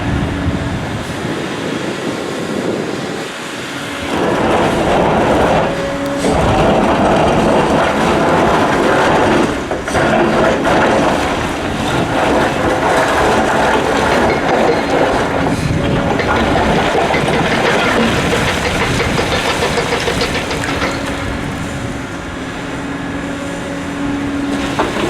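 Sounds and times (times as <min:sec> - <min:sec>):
diesel excavator running under load: 0:00.0 - 0:25.0
rock rattling and clattering: 0:04.1 - 0:21.6.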